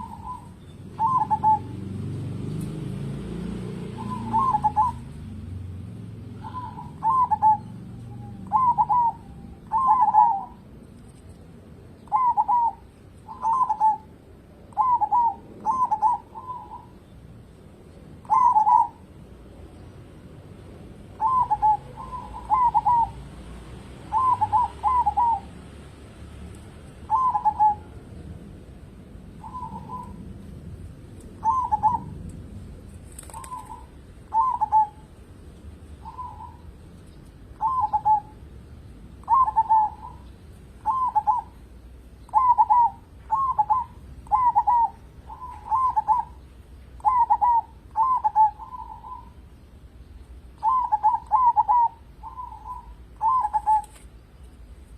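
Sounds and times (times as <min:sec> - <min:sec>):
dove cooing: 0:00.0 - 0:10.8, 0:12.0 - 0:17.0, 0:18.2 - 0:19.2, 0:21.1 - 0:23.4, 0:24.0 - 0:25.6, 0:27.0 - 0:28.2, 0:29.4 - 0:30.5, 0:31.3 - 0:32.2, 0:33.1 - 0:35.2, 0:36.0 - 0:36.8, 0:37.5 - 0:38.5, 0:39.2 - 0:46.4, 0:47.0 - 0:49.5, 0:50.6 - 0:54.0.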